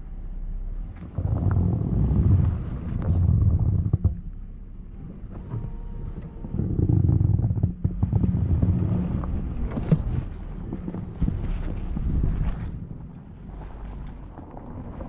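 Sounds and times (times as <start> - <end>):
wind buffeting microphone: 6.3 - 15.0.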